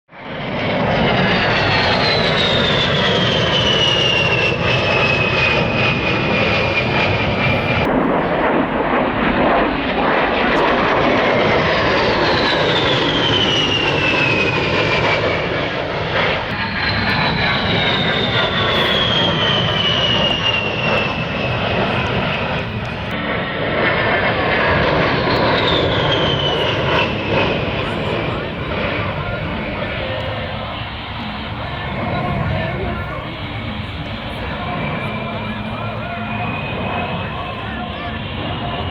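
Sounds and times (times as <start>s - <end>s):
jet flying past: 0.1s - 38.9s.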